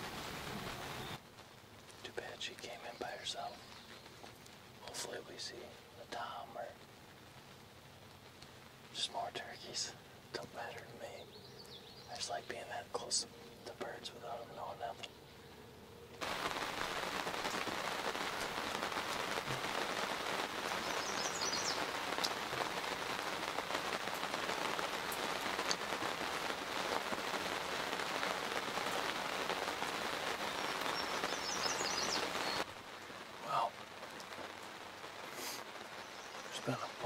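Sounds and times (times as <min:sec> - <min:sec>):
steady rain falling: 0:00.0 - 0:37.0
bird high chirps: 0:20.8 - 0:21.8, 0:30.9 - 0:32.6.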